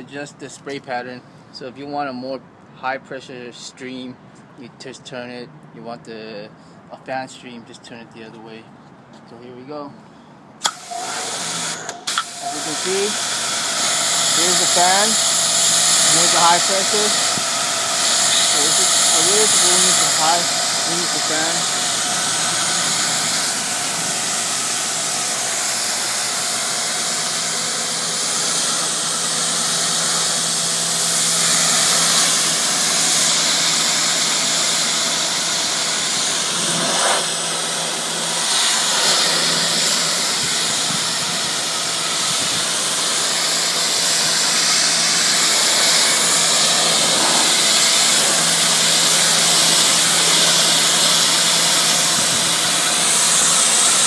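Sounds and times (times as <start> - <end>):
high-pressure water spray hissing: 10.6 - 54.0
pressure washer motor hum: 10.6 - 54.0.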